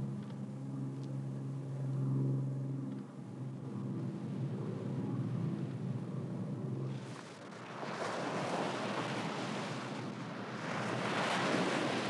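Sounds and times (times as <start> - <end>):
low engine rumble: 0.0 - 7.5
ocean surf washing in: 7.5 - 12.0.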